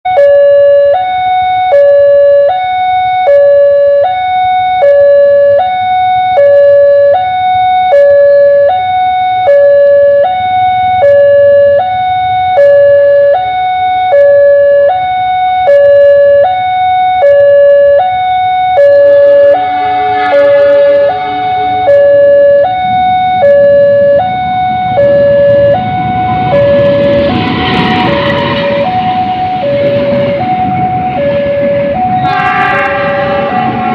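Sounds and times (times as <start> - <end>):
level crossing alarm two tones: 0.1 - 33.9
complex electronic tones: 18.4 - 33.9.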